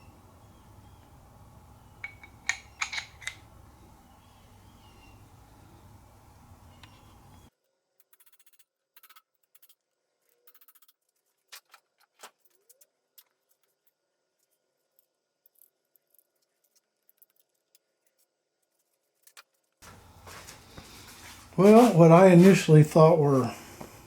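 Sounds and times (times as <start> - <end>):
metallic rattles of hand tools: 0.0 - 7.5.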